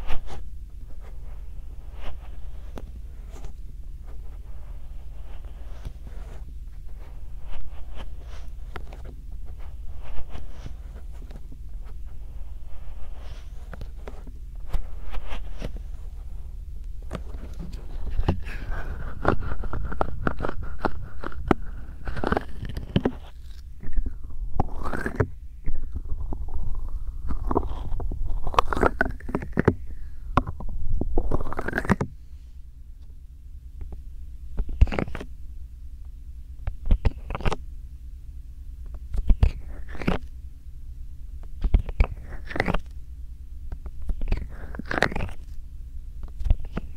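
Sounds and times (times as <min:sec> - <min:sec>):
soft taps and rustles: 0:00.0 - 0:24.2
hands rubbing microphone: 0:00.0 - 0:32.1
steady low rumble: 0:00.0 - 0:37.0, 0:37.6 - 0:46.9.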